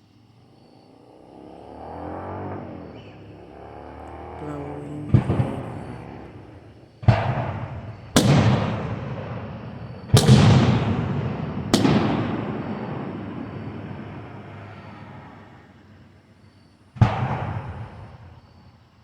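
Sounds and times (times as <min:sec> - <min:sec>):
fireworks booming: 0:04.2 - 0:15.6, 0:17.0 - 0:18.5.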